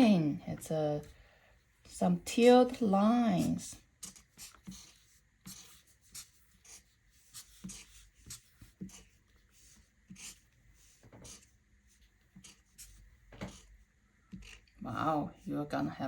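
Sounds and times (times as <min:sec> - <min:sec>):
marker scratching on paper: 0:02.4 - 0:14.7.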